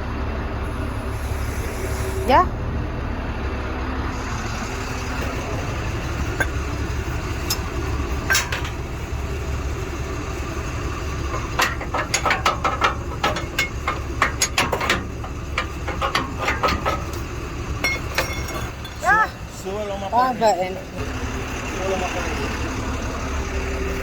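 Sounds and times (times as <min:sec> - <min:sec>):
truck engine idling: 0:00.0 - 0:24.0
sharp metal clanks and knocks: 0:06.3 - 0:09.2, 0:10.9 - 0:19.2.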